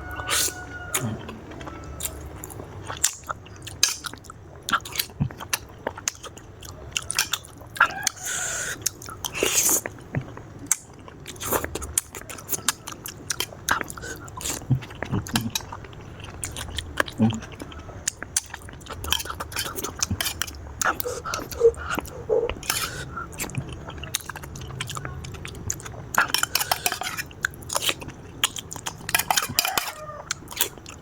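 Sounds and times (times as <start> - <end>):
wet chewing and biting: 8.8 - 31.0.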